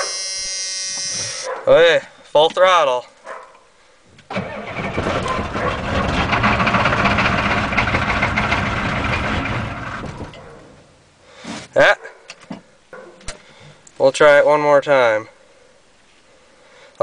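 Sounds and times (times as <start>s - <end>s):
starter cranking diesel engine: 4.3s - 10.2s.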